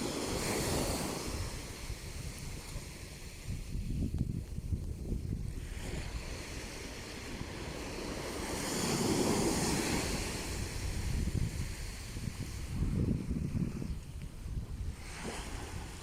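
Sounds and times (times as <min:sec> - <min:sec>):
sea waves breaking: 0:00.0 - 0:03.8, 0:05.5 - 0:13.2, 0:14.7 - 0:16.0
wind rumble on microphone: 0:00.0 - 0:16.0.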